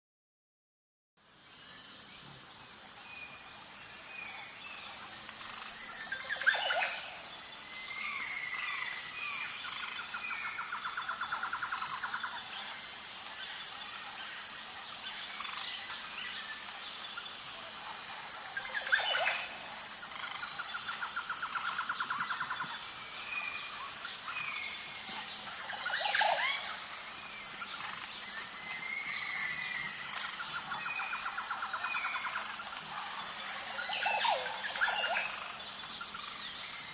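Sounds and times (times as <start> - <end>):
high-pitched insect drone: 1.2 - 36.9.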